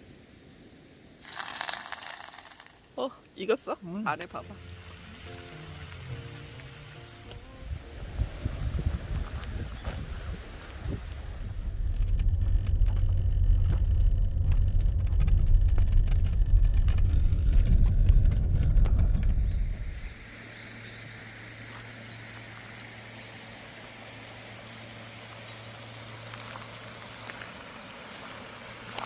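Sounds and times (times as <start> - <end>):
faint hiss: 0.0 - 11.5
low hum: 4.3 - 28.9
wind buffeting microphone: 7.4 - 20.2.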